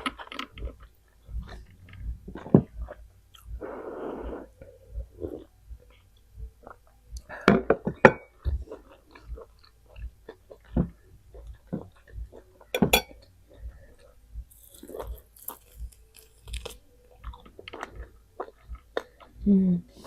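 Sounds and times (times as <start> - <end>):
person chewing and biting: 14.0 - 19.4.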